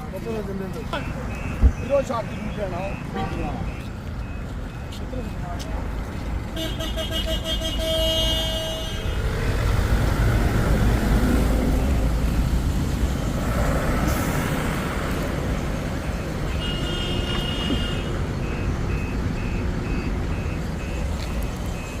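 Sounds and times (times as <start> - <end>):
truck engine and road noise: 0.0 - 22.0
reversing alarm beeping: 0.9 - 5.0, 15.8 - 16.6, 17.6 - 22.0.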